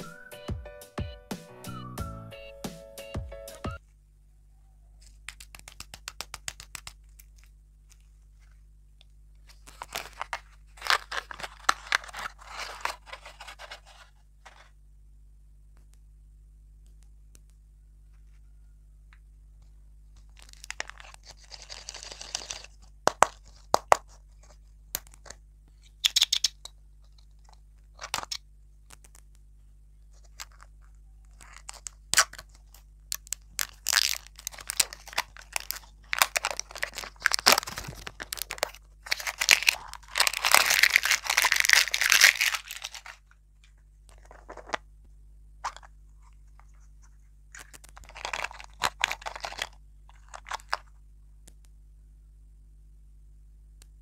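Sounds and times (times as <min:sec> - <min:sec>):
plastic wrapper crinkling: 0:05.0 - 0:08.6, 0:09.4 - 0:14.7, 0:20.2 - 0:28.4, 0:30.1 - 0:44.8, 0:45.6 - 0:51.0.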